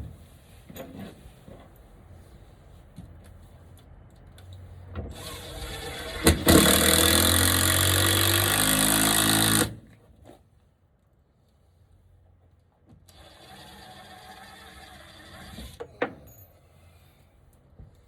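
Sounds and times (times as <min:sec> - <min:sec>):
handheld power tool running: 0:05.2 - 0:09.8.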